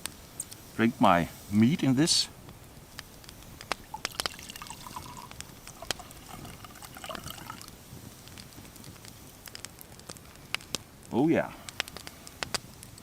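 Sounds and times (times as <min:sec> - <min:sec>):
liquid pouring into mug: 0:03.8 - 0:07.7.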